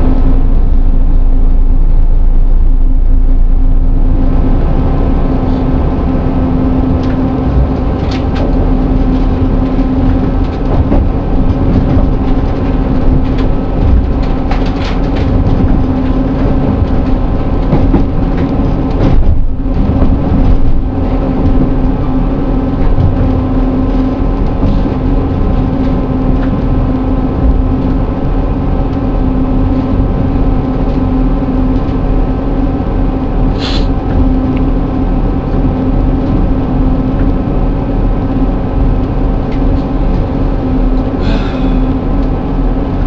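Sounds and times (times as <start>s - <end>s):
train engine drone: 0.0s - 43.0s
wheels rumbling on rails: 0.0s - 43.0s
clicks and knocks from track: 6.9s - 28.3s.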